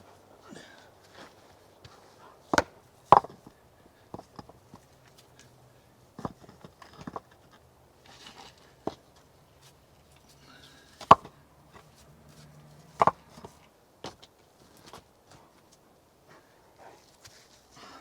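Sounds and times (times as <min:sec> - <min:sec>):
sharp knocks and clatters: 0:02.5 - 0:04.9, 0:06.2 - 0:07.6, 0:11.0 - 0:14.3.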